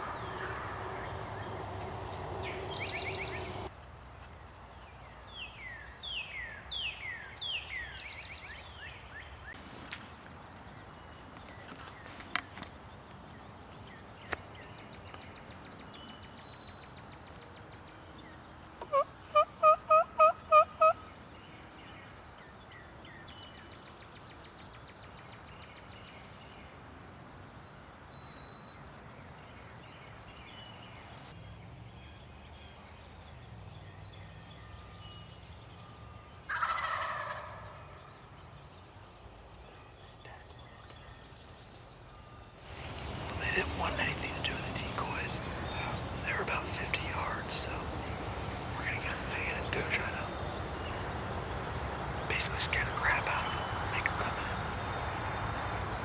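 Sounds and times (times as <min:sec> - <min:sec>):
faint songbird chirps: 0:00.0 - 0:56.0
turkey gobbling: 0:18.9 - 0:21.0, 0:36.5 - 0:37.9
turkey yelps: 0:18.9 - 0:21.0.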